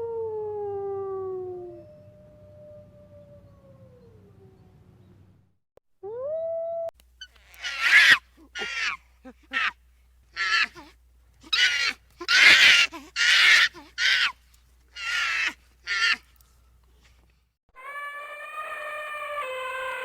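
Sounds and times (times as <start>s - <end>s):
bird harsh raspy calls: 7.2s - 9.0s, 11.5s - 14.3s.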